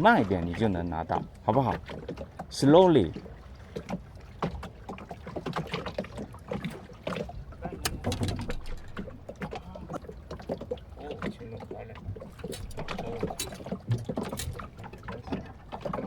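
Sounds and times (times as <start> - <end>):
light knocks and clicks on boat: 0.0 - 16.0.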